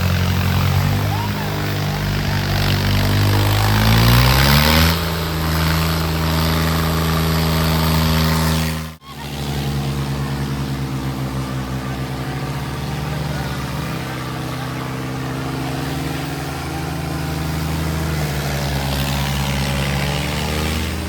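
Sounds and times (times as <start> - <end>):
tractor diesel engine revving: 0.0 - 21.0.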